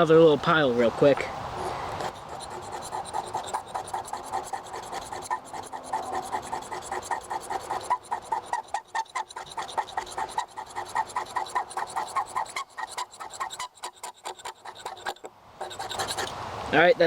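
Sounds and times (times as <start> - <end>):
knife scraping magnesium block: 1.6 - 16.4.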